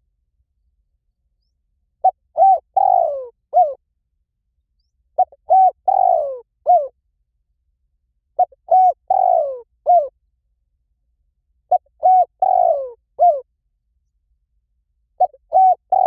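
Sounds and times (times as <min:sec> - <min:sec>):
dove cooing: 0:02.0 - 0:03.8, 0:05.2 - 0:06.9, 0:08.4 - 0:10.2, 0:11.7 - 0:13.5, 0:15.2 - 0:16.0.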